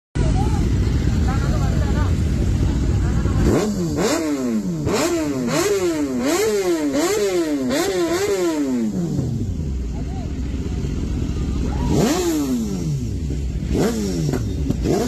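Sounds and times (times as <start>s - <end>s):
motorcycle engine idling and revving: 0.2s - 15.0s.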